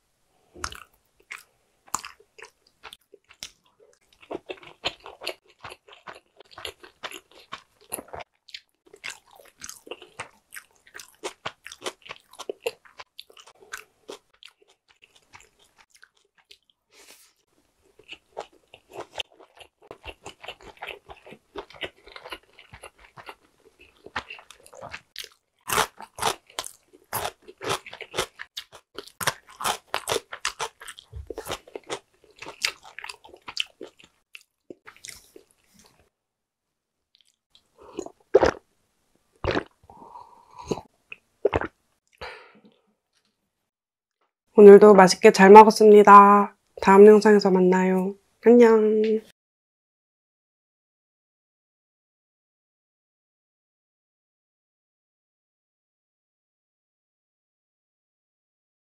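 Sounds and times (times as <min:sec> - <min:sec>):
person chewing: 0:00.6 - 0:36.0, 0:37.1 - 0:38.6, 0:39.4 - 0:43.4.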